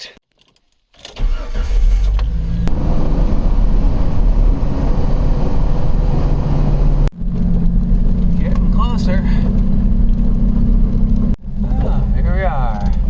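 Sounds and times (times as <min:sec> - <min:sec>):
car engine starting and running: 0:01.0 - 0:13.0.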